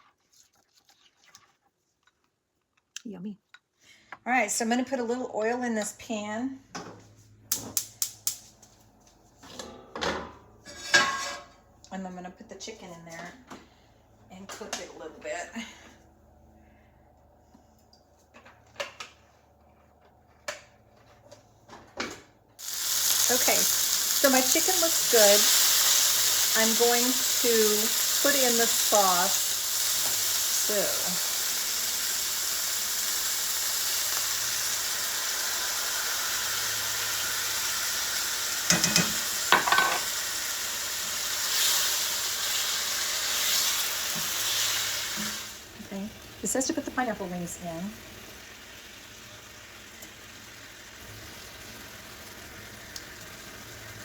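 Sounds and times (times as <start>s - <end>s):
food sizzling in a pan: 22.6s - 54.0s
kitchen clicks and knocks: 38.7s - 40.1s.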